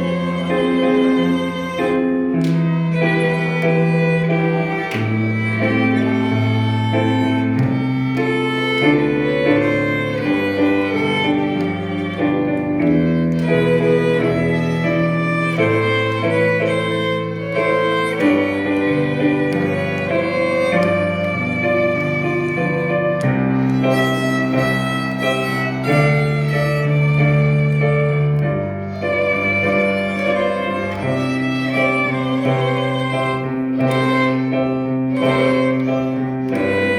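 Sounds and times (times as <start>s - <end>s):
held low string notes: 0.0s - 36.9s
plucked string accompaniment: 0.0s - 36.9s
violin melody: 0.0s - 36.9s.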